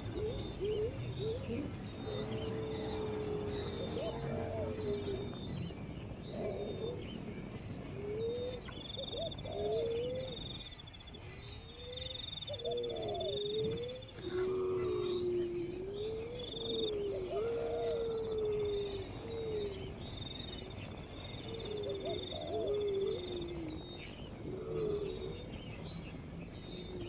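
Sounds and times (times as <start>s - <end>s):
low gliding animal calls: 0.0s - 10.6s, 11.7s - 20.2s.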